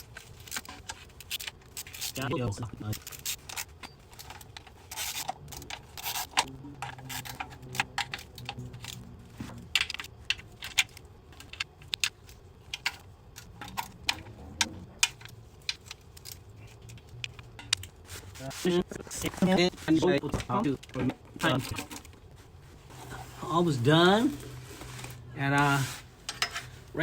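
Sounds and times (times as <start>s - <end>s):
metal tools and bolts clinking: 26.2s - 26.8s.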